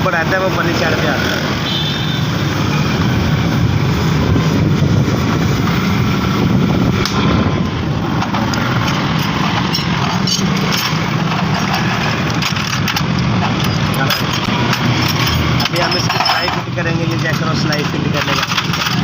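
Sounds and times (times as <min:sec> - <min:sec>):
low rumble of engines: 0:00.0 - 0:19.0.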